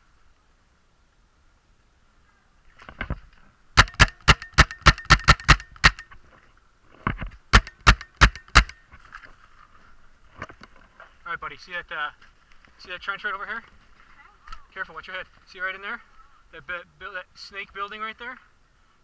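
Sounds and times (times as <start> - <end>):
paintball markers firing: 3.8 - 6.1, 7.6 - 8.8.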